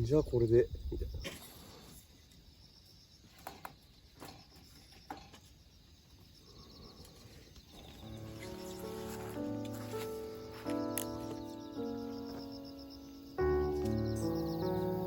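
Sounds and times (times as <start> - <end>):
insects chirping: 0.0 - 15.0
background music: 8.0 - 15.0.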